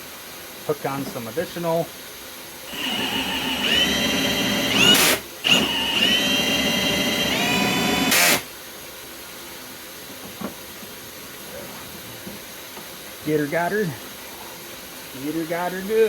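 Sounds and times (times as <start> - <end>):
drill spinning drain cable: 2.7 - 8.5.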